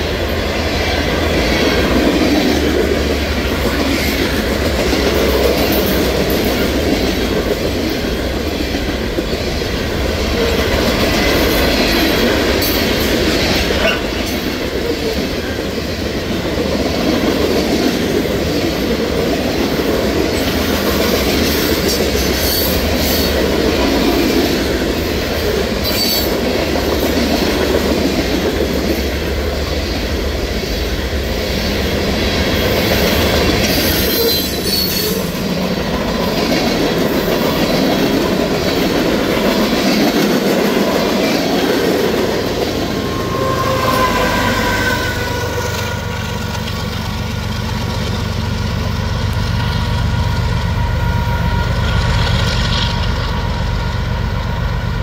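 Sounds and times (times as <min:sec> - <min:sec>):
wheel squeal: 0:42.7 - 0:46.3
freight cars rumbling and clattering: 0:45.6 - 0:50.5.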